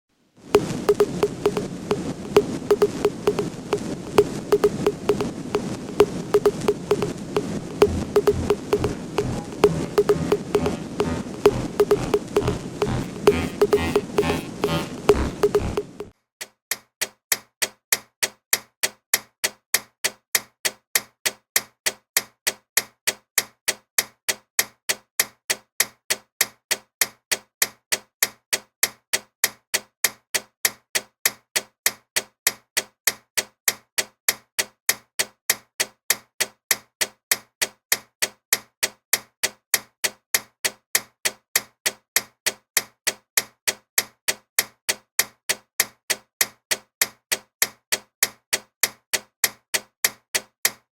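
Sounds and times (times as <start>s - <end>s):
clock ticking loudly: 0.6s - 16.1s.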